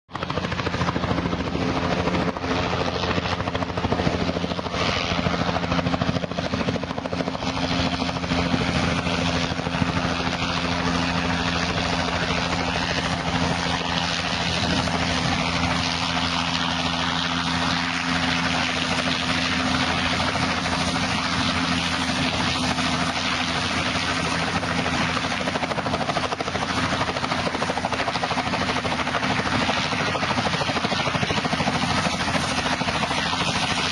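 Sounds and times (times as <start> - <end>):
helicopter rotor and turbine: 0.1 - 33.9.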